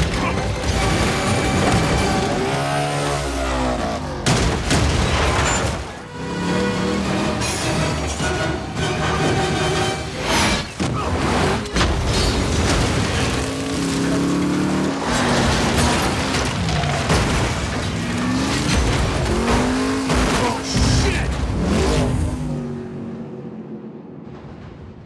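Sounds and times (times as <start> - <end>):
tyres skidding: 0.0 - 22.8
car engines revving: 0.0 - 24.4
film score music: 0.0 - 25.0
crash impacts: 10.5 - 21.6.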